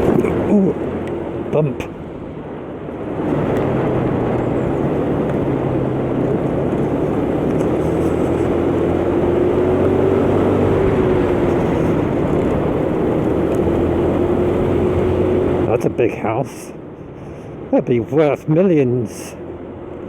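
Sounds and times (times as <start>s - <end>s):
wind rush: 0.0s - 15.7s
motor scooter engine running: 4.6s - 13.9s.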